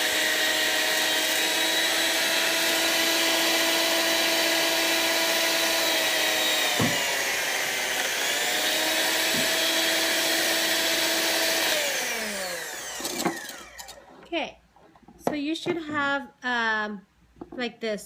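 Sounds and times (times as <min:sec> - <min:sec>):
electric beater whirring: 0:00.0 - 0:14.1.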